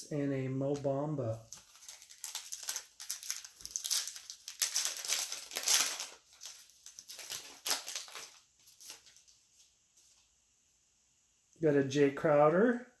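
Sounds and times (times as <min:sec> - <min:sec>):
foil wrapper crinkling: 0:01.4 - 0:09.7.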